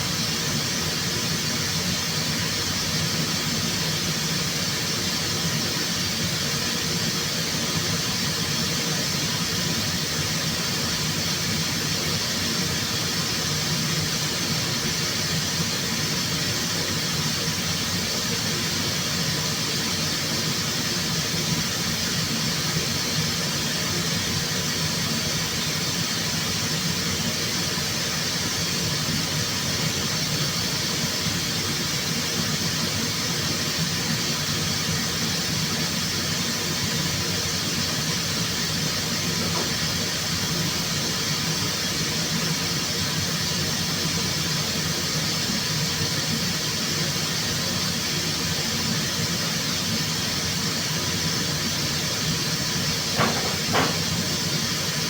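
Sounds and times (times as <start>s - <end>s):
compressed-air tool hissing: 24.6s - 43.9s, 48.6s - 55.0s.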